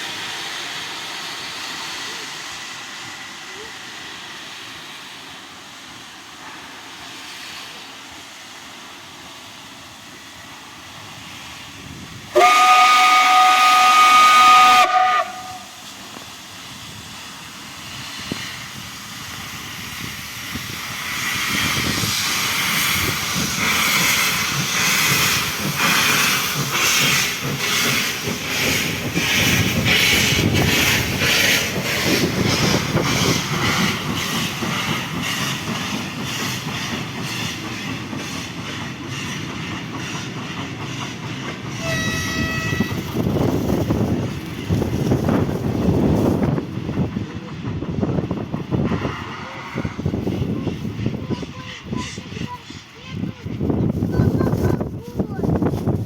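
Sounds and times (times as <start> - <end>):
steam hissing: 0.0 - 56.0
steam locomotive whistle: 12.3 - 15.8, 41.8 - 43.2.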